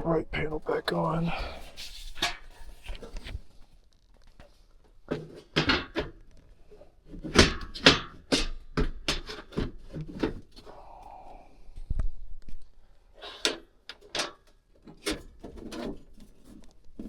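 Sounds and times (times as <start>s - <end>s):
sheet metal knocks and clatters: 5.1s - 6.2s, 7.2s - 10.5s.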